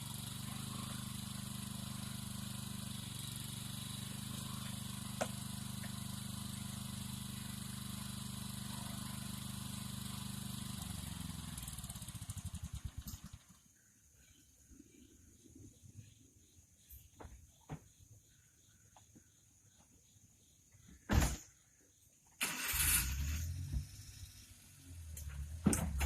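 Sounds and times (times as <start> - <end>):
engine running and shutting off: 0.0 - 13.8, 22.3 - 26.0.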